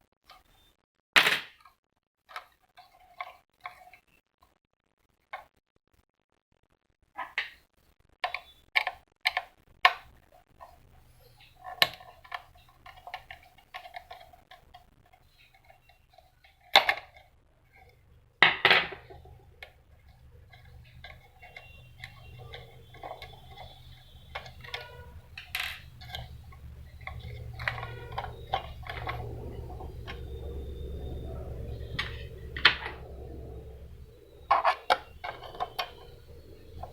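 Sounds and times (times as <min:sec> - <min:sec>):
plastic and metal parts clicking: 0:18.5 - 0:36.9
low hum: 0:19.0 - 0:36.9.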